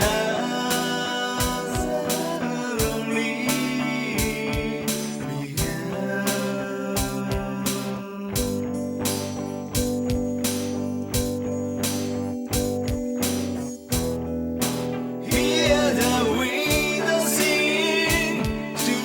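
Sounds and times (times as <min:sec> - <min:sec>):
drums keeping a steady beat: 0:00.0 - 0:19.0
bass: 0:01.4 - 0:19.0
sustained guitar chords: 0:07.0 - 0:19.0
wavering lead melody: 0:08.4 - 0:19.0.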